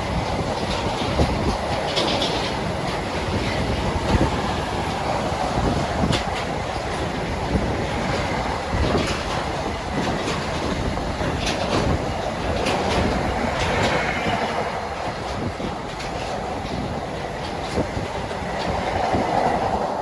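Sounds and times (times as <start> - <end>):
train rolling on rails: 0.0 - 20.0
wheels clacking over rail joints: 0.0 - 20.0.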